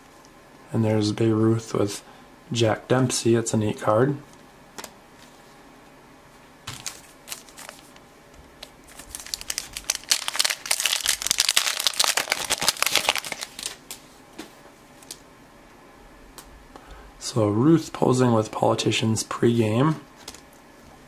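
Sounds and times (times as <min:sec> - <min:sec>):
wrapper crinkling: 0:06.7 - 0:08.0, 0:08.6 - 0:14.0.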